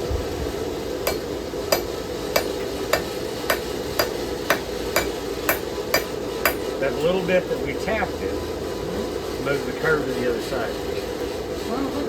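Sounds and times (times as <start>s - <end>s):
hammer tapping steel on anvil: 1.0s - 6.8s.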